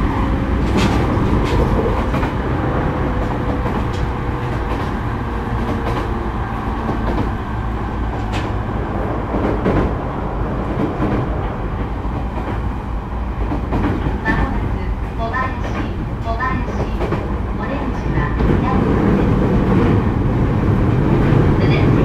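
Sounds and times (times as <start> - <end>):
train wheels rumbling: 0.0 - 22.0
wheels clicking over rail joints: 0.5 - 2.4.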